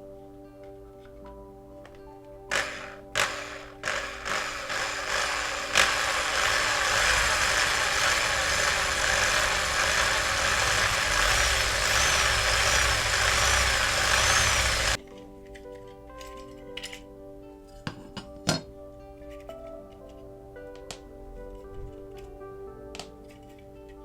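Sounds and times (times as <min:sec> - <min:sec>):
handheld electric power tool running: 0:02.5 - 0:15.0.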